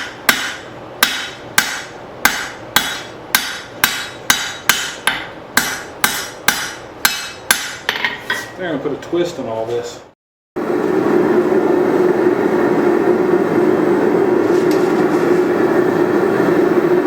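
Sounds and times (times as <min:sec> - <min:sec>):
hammer striking steel on anvil: 0:00.0 - 0:08.6.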